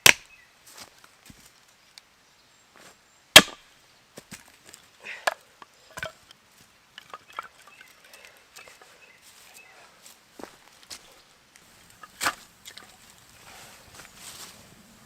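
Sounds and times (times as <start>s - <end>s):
axe striking firewood: 0.0s - 0.3s, 3.4s - 3.6s, 12.1s - 12.4s
wood pieces clattering: 7.0s - 8.2s.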